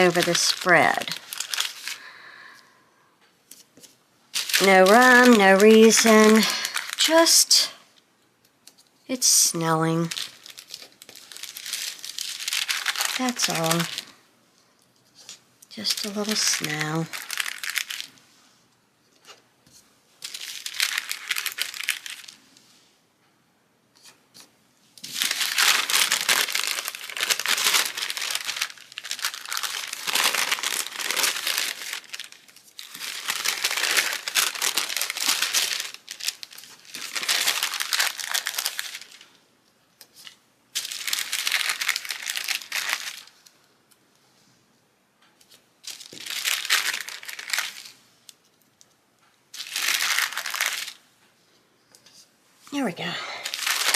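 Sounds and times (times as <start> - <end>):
sticker sheet crinkling and rustling: 0.0 - 2.0, 3.5 - 7.4, 9.7 - 14.1, 15.1 - 18.2, 19.2 - 22.4, 24.0 - 39.3, 40.0 - 43.5, 45.4 - 48.0, 49.6 - 51.0, 53.4 - 53.9.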